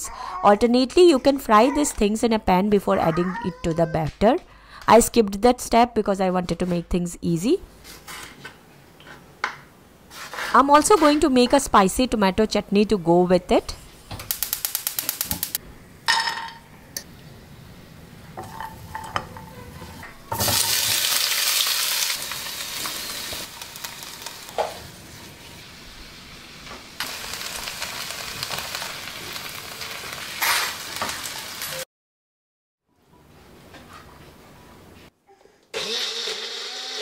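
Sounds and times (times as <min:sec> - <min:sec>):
vegetables sizzling in oil: 0:20.3 - 0:31.8.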